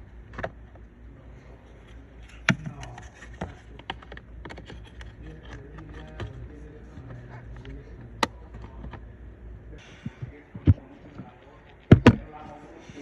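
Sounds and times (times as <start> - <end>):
low steady hum: 0.0 - 13.0
plastic parts clicking and knocking: 0.3 - 0.9, 2.2 - 9.0, 10.0 - 12.5.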